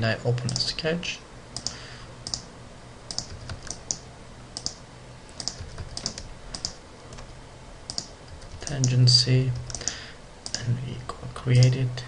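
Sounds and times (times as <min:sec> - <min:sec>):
faint low hum: 0:00.0 - 0:12.0
keyboard and mouse clicking: 0:01.6 - 0:02.5, 0:03.1 - 0:04.0, 0:04.6 - 0:04.8, 0:05.4 - 0:07.3, 0:07.9 - 0:09.0, 0:09.6 - 0:10.7, 0:11.6 - 0:11.8.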